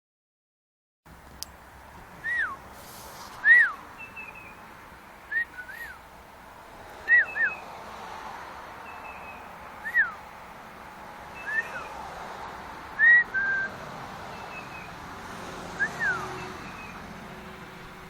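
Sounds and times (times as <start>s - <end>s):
pet birds whistling: 2.2s - 2.6s, 3.4s - 4.6s, 5.3s - 6.0s, 7.1s - 7.6s, 8.9s - 10.2s, 11.4s - 12.0s, 13.0s - 13.7s, 15.8s - 17.0s.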